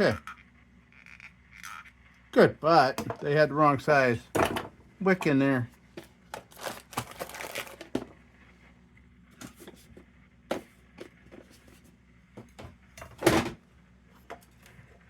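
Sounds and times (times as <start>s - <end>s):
small metal parts clicking: 1.0s - 2.0s.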